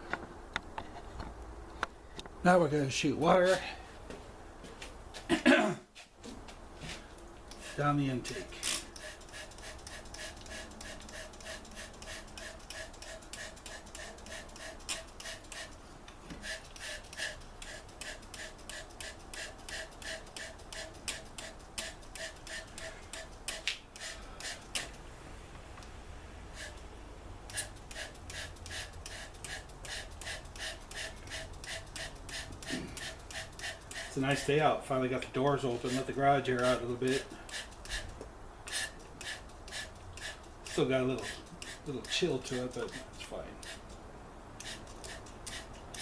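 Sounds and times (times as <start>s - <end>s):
squeaky rhythmic rasping strokes: 35.7s - 44.0s.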